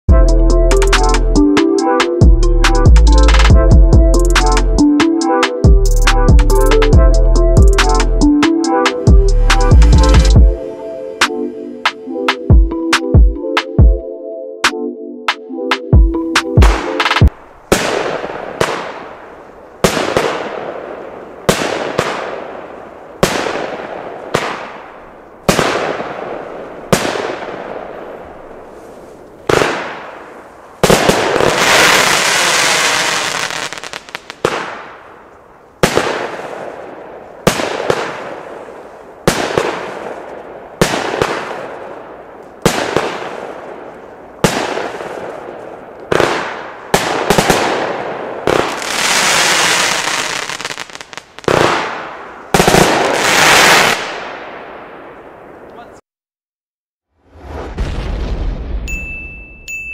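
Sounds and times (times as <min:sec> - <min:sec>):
firework hissing and crackling: 0:48.7 - 0:51.5
firework launch bangs: 0:57.3 - 0:59.0.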